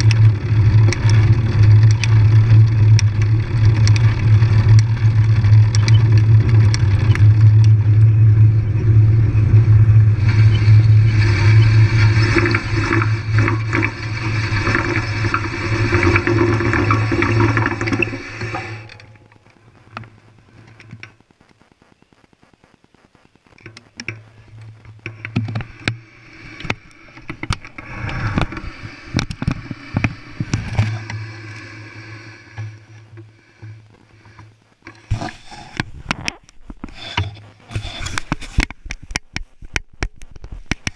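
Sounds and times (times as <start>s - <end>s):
bike riding rumble: 0.0s - 21.2s, 23.6s - 40.9s
faint regular ticking: 0.0s - 35.1s
rattling on microphone: 34.8s - 40.9s.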